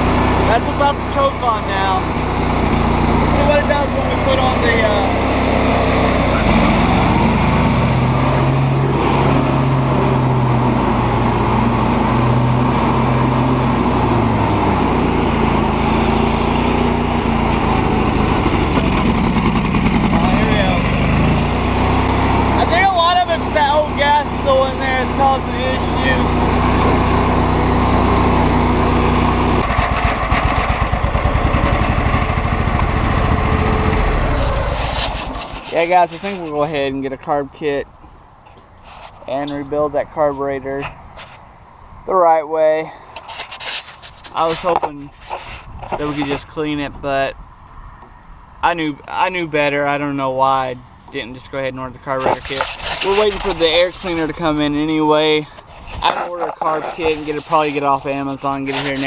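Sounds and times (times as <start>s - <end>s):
lawn tractor engine running: 0.0s - 37.0s, 52.0s - 59.0s.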